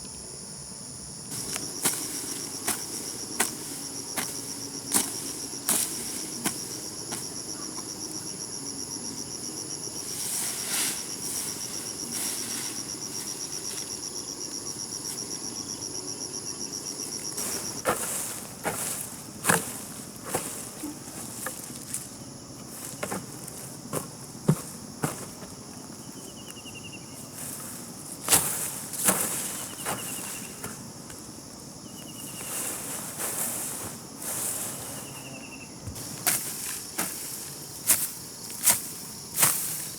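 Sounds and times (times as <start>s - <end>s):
faint high hum: 0.0s - 39.9s
insects chirring: 0.0s - 39.9s
sharp knocks and scuffs: 22.8s - 25.6s.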